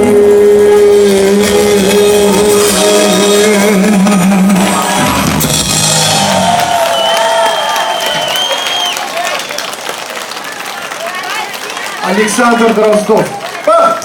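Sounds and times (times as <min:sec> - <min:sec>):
live band with singing: 0:00.0 - 0:09.0.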